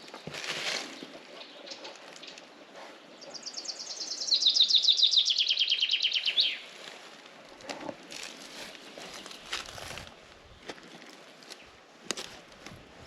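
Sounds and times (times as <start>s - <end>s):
songbird singing: 0.0s - 8.0s.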